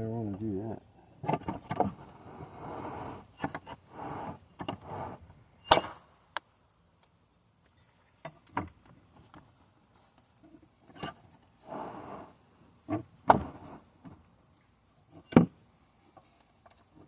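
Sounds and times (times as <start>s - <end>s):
sharp metallic clink: 5.6s - 6.2s.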